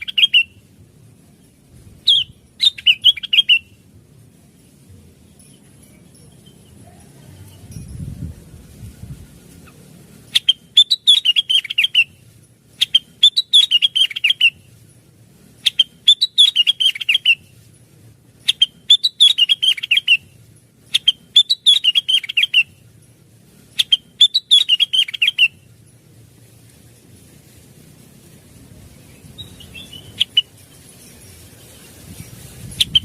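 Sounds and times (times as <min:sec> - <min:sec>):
bird singing chattering phrase: 0:00.0 - 0:00.5, 0:15.7 - 0:17.4, 0:20.9 - 0:22.8.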